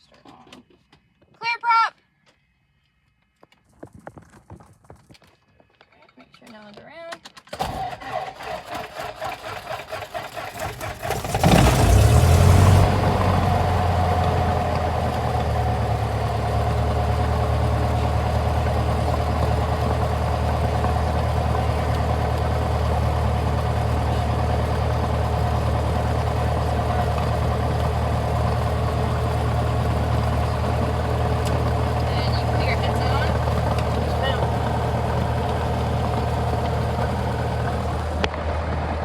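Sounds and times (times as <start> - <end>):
plane engine starting and idling: 7.4 - 39.0.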